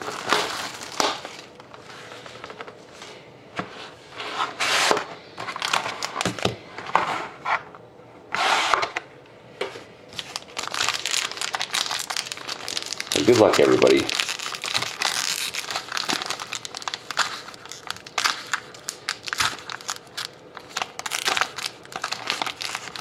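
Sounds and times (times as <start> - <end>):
packaging rustling and tearing: 0.0 - 2.8, 4.6 - 6.6, 10.1 - 23.0.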